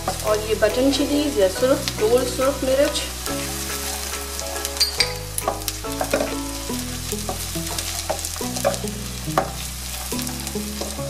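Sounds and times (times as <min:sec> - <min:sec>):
food sizzling in hot oil: 0:00.0 - 0:11.0
soft background music: 0:00.0 - 0:11.0
spatula clicking and scraping pan: 0:03.2 - 0:11.0.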